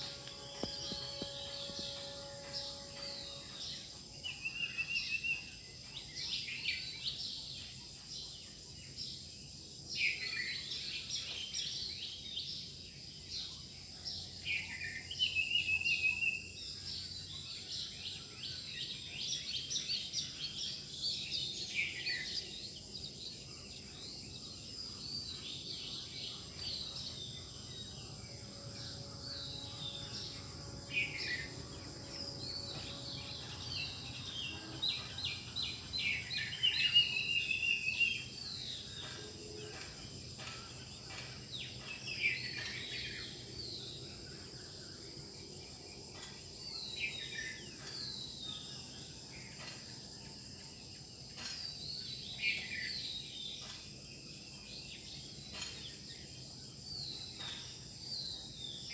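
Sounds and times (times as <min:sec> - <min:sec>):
birds chirping: 0:00.0 - 0:03.4, 0:25.2 - 0:38.9
steady high-pitched hum: 0:00.0 - 0:06.3, 0:18.5 - 0:49.5.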